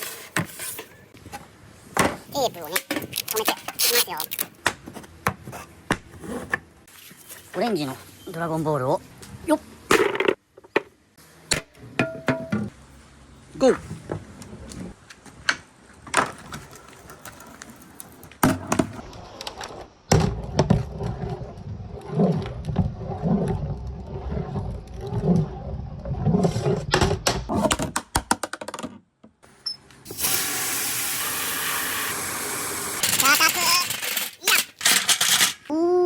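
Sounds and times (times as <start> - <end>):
ball rumbling on plastic slope: 16.2 - 28.0.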